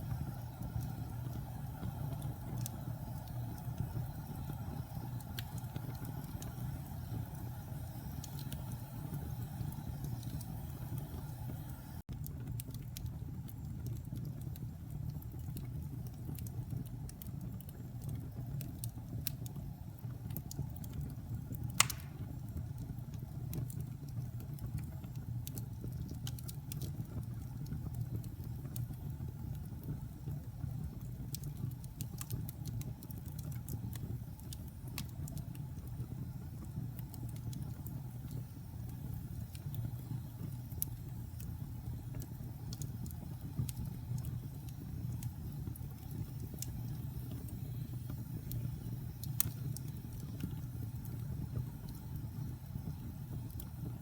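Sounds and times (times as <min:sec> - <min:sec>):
low fire rumble: 0:00.0 - 0:54.0
wood fire crackling: 0:00.0 - 0:54.0
loud fire pop: 0:21.8 - 0:22.4.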